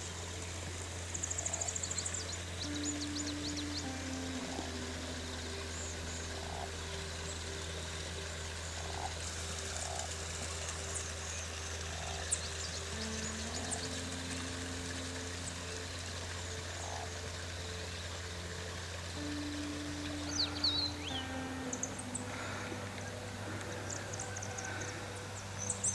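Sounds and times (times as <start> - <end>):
frogs croaking: 0.0 - 25.9
steady low hum: 0.0 - 25.9
soft held tones: 2.5 - 8.6, 12.9 - 25.9.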